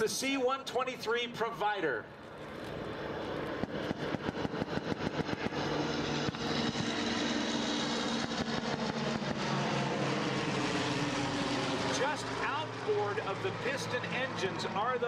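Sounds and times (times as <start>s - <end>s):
plane engines droning: 0.0s - 15.0s.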